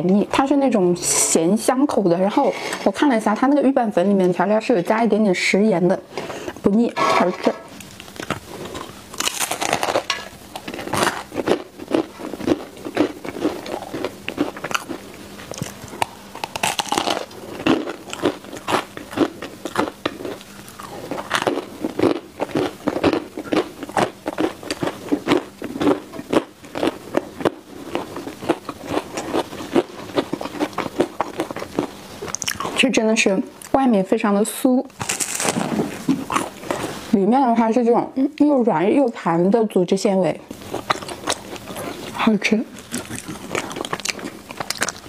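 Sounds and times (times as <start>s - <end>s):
crunchy biting and chewing: 7.2s - 32.8s, 34.9s - 37.0s, 40.5s - 45.0s.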